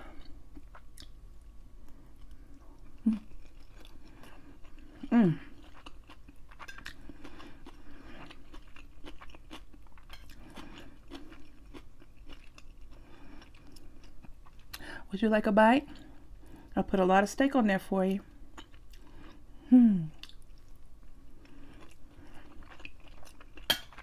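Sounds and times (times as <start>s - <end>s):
person chewing food: 0.0s - 14.8s, 18.3s - 24.0s
appreciative mmm hum: 1.8s - 15.1s, 18.2s - 24.0s.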